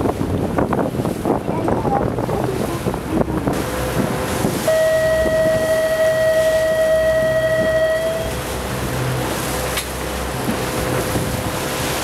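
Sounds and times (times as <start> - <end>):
boat running noise: 0.0 - 12.0
wind buffeting microphone: 0.0 - 12.0
boat horn blast: 3.6 - 11.1.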